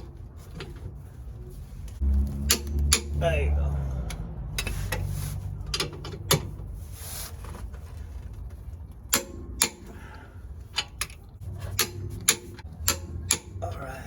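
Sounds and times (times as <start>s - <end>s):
metallic tool clicks and knocks: 10.8s - 13.6s.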